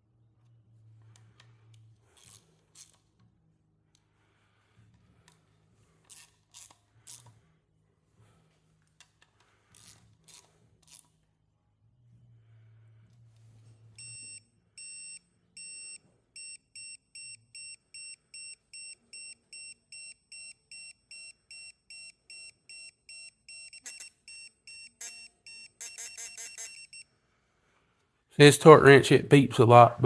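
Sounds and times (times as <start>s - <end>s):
torque wrench beeping: 14.0s - 27.0s.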